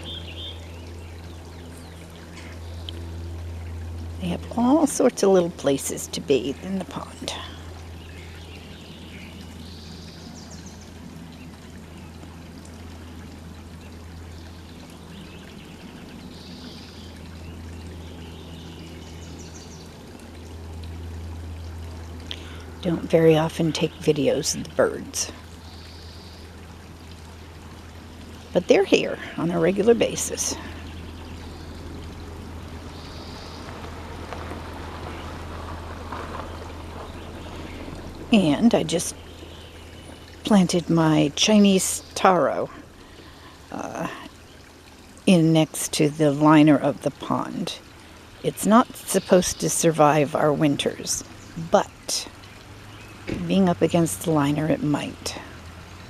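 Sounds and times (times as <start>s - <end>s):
bird calls: 0.0s - 3.1s
low hum: 0.0s - 56.0s
water trickling and splashing: 0.0s - 56.0s.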